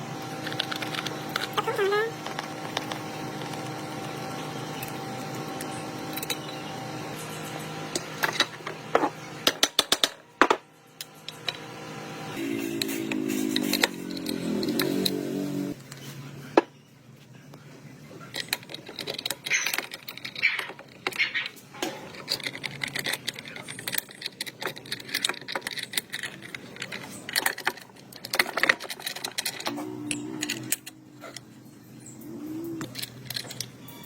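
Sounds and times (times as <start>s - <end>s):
metal tools clinking and scraping: 18.2s - 31.6s, 32.6s - 33.8s.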